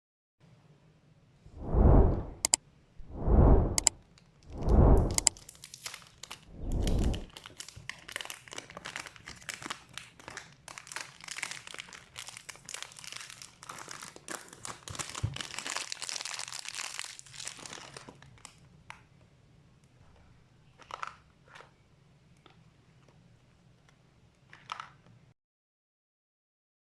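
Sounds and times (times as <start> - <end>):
plastic packaging crinkling: 7.3 - 18.4.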